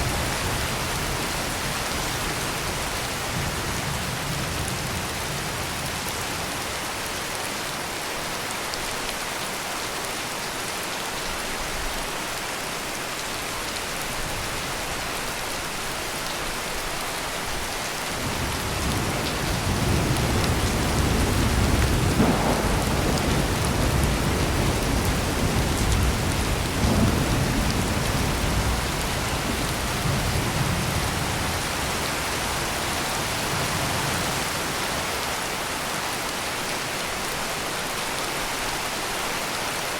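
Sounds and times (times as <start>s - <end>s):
heavy rain pouring: 0.0s - 39.9s
thunder rolling: 18.2s - 34.2s.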